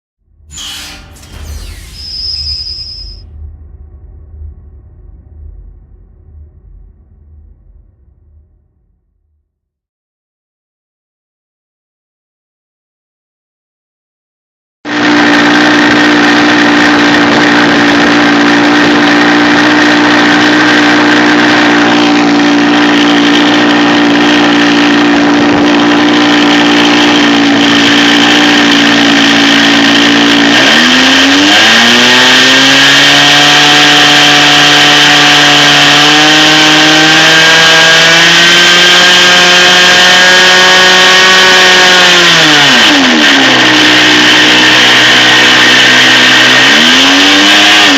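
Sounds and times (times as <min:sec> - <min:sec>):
model plane engine running: 0:14.9 - 0:31.3, 0:32.0 - 0:46.8.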